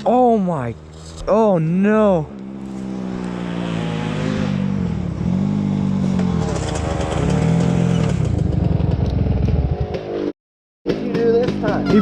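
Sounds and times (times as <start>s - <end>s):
dirt bike engine revving: 2.0s - 10.3s.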